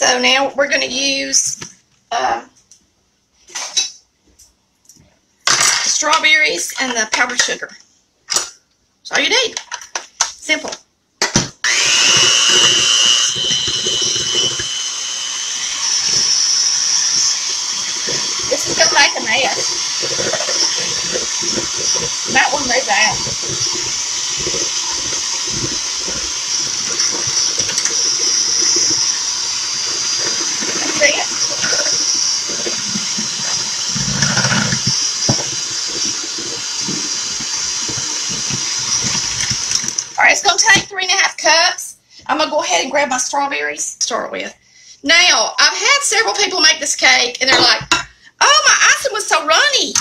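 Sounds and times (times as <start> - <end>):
electric mixer whining: 11.6 - 40.2.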